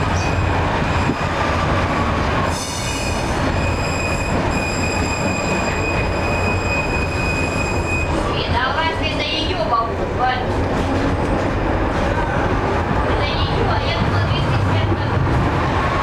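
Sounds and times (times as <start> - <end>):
tram rumbling on rails: 0.0 - 16.0
high squealing tone: 2.9 - 8.2.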